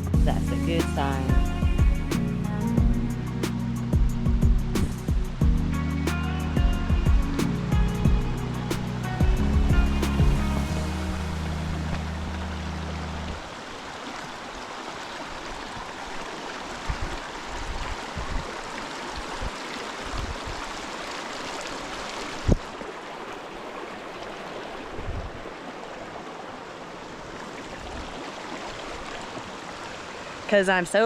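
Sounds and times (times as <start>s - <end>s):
low thumps: 0.0s - 5.8s, 6.6s - 13.3s
water rushing: 0.0s - 31.0s.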